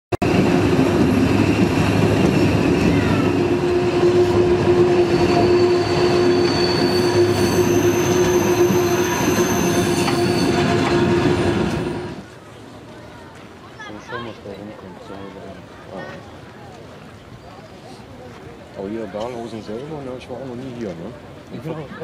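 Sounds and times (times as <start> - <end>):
train rolling rumble: 0.2 - 12.8
train wheels squealing: 2.3 - 12.2.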